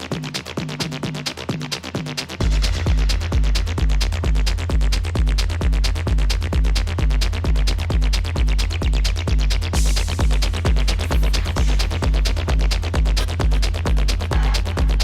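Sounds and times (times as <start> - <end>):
drum machine kick with bass: 0.0 - 15.0
hi-hats ticking: 0.0 - 15.0
techno music: 0.0 - 15.0.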